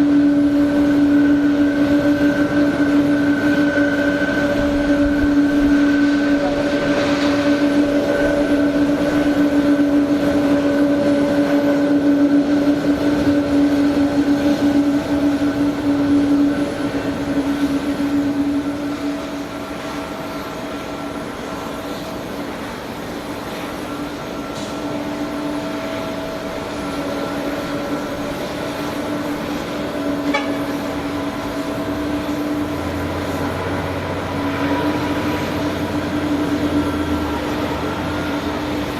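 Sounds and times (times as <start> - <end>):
machinery drone with held hum: 0.0 - 38.9.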